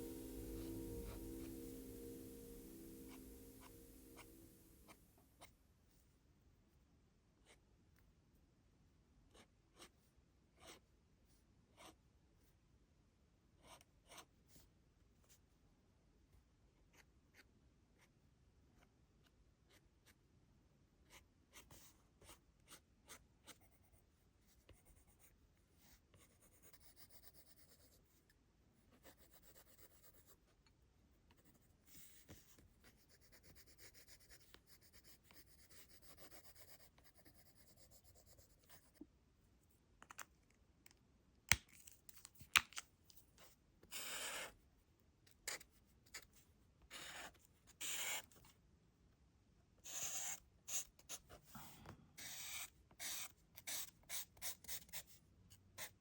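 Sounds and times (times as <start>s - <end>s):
drawing tool scratching on paper: 31.4s - 39.0s, 43.9s - 44.5s, 46.9s - 48.4s, 49.8s - 51.4s, 52.2s - 55.2s.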